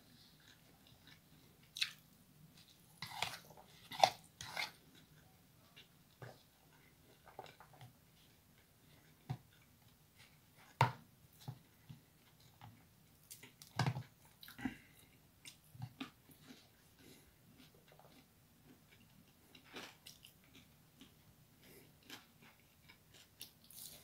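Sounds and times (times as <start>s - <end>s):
person chewing noodles: 0.2s - 2.0s, 11.6s - 24.0s.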